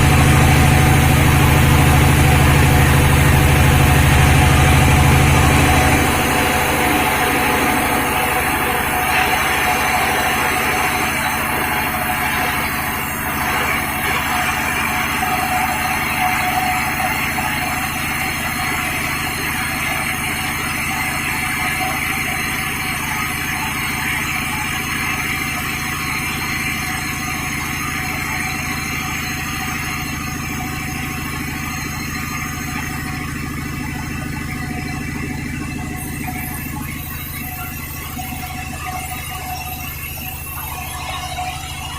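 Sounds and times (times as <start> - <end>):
higher whirring noise: 0.0 - 16.8
sawmill engine hum: 0.0 - 41.9.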